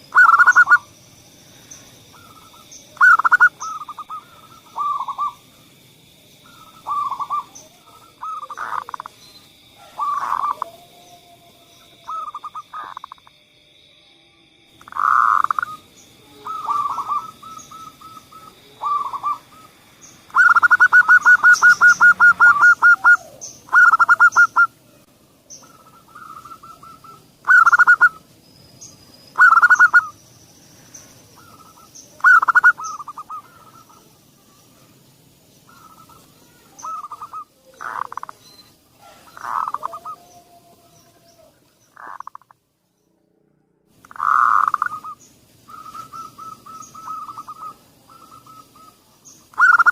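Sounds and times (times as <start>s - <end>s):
dove cooing: 0.0s - 0.9s, 2.1s - 5.4s, 6.4s - 9.2s, 9.8s - 13.2s, 14.8s - 24.8s, 25.6s - 28.2s, 29.4s - 30.2s, 31.3s - 34.5s, 35.7s - 38.4s, 39.0s - 42.5s, 44.1s - 49.9s
faint high bird chirps: 0.0s - 0.9s, 1.6s - 5.4s, 6.4s - 13.3s, 14.2s - 49.9s.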